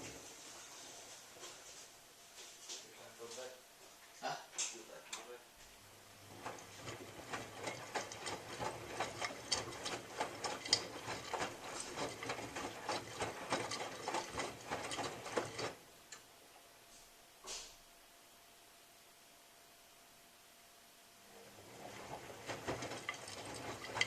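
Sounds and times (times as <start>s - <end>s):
washing machine motor humming: 5.7s - 16.8s, 21.2s - 24.0s
clicks and taps from drum load: 6.4s - 16.2s, 22.5s - 24.0s.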